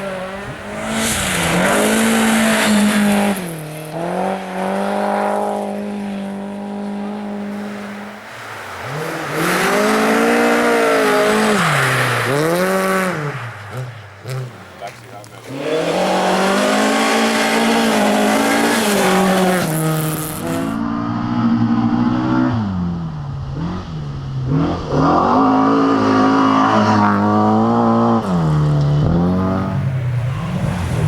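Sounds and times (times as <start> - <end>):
car engine revving hard: 0.0 - 31.0.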